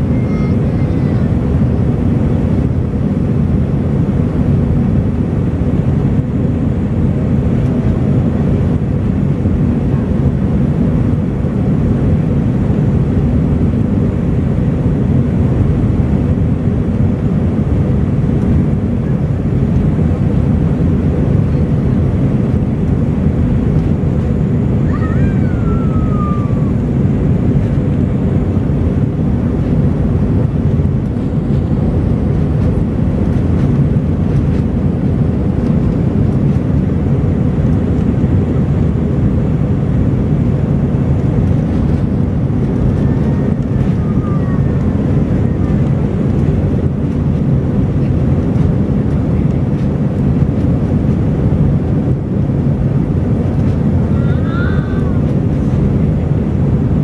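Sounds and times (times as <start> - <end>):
faint hum: 0.0 - 57.0
jet airliner rumble: 0.0 - 57.0.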